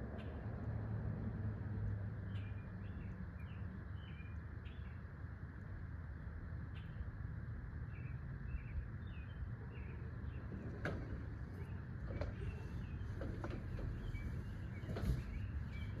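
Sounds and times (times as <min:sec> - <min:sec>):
low outdoor rumble: 0:00.0 - 0:16.0
small birds chirping: 0:02.2 - 0:05.6, 0:06.6 - 0:16.0.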